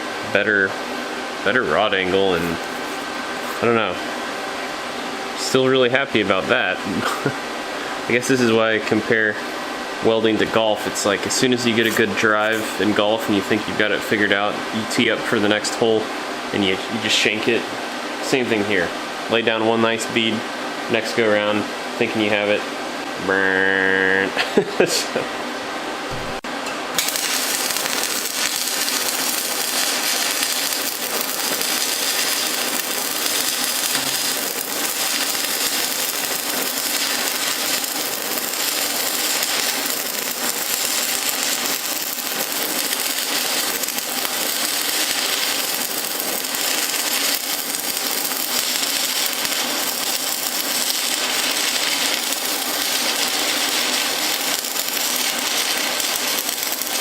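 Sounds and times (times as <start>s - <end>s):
welding arc crackling: 0.9s - 4.1s, 10.4s - 14.2s, 27.0s - 57.0s.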